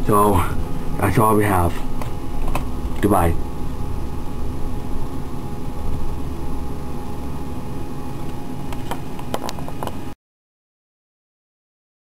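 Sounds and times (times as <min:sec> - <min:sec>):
low mechanical hum: 0:00.0 - 0:10.2.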